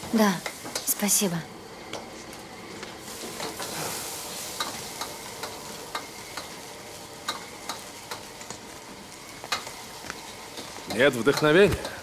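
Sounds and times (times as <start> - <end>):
noodles sizzling in a pan: 0.0 - 12.0
utensil tapping against pan: 10.6 - 12.0.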